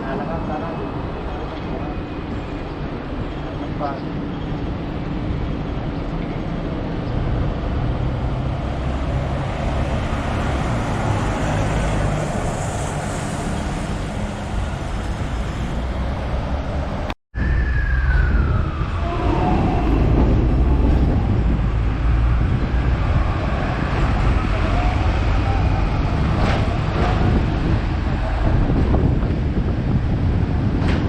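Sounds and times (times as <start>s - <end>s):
tram rumbling and rattling: 0.0s - 31.0s
high tone sliding down in pitch: 17.4s - 21.4s.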